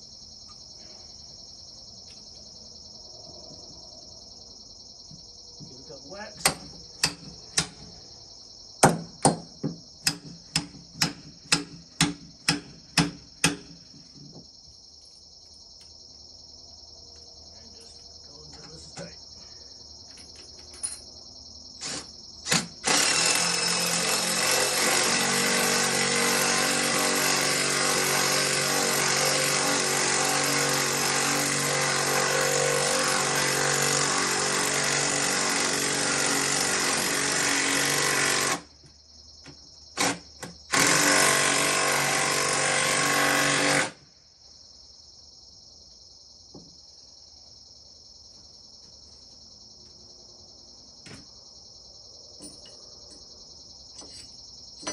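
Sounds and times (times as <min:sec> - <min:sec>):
crickets chirping: 0:00.0 - 0:54.9
impact driver running: 0:34.2 - 0:38.6, 0:40.0 - 0:44.0.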